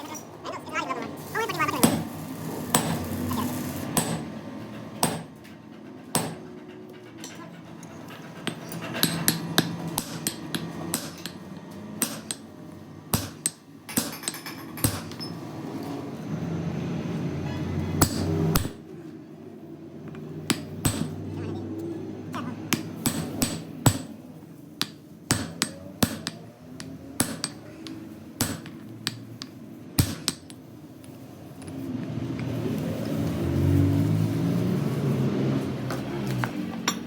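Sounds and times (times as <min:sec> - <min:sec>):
hammer on metal: 0:04.0 - 0:04.3, 0:05.0 - 0:05.3, 0:06.1 - 0:06.5, 0:24.8 - 0:30.6.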